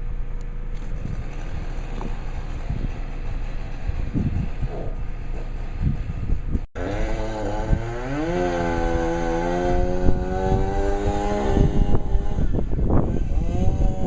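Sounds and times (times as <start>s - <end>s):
low rumble: 0.0s - 6.7s
two-stroke engine revving: 0.8s - 14.0s.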